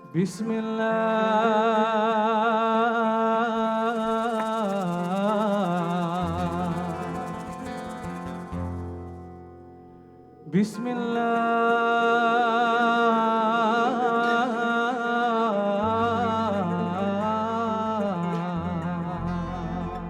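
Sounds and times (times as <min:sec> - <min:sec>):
steady drone: 0:03.9 - 0:09.8
ornamented melodic line: 0:05.6 - 0:11.3, 0:16.0 - 0:20.0
low bass notes: 0:15.9 - 0:20.0.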